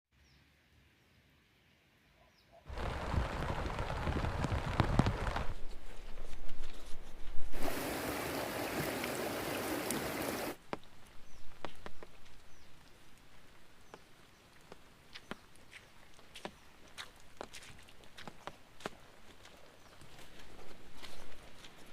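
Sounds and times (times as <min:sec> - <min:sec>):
bird chirps: 0:02.1 - 0:02.7
heavy rain: 0:02.7 - 0:05.6, 0:07.6 - 0:10.6.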